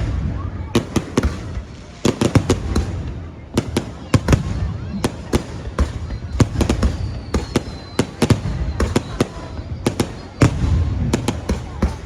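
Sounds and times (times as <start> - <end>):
fireworks bangs: 0.0 - 12.0
high whistle: 5.8 - 10.9.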